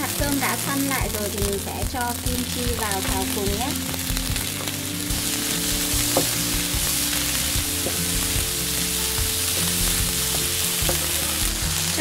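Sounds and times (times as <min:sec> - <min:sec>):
rice sizzling in a pan: 0:00.0 - 0:12.0
spatula stirring food: 0:04.2 - 0:12.0.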